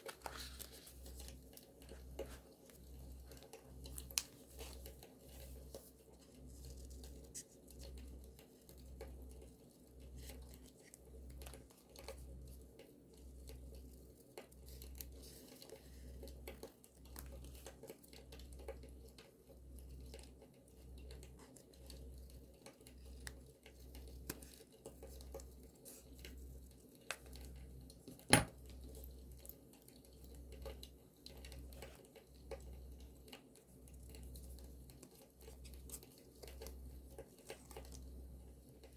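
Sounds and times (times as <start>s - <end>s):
paper crinkling: 0.0s - 7.9s.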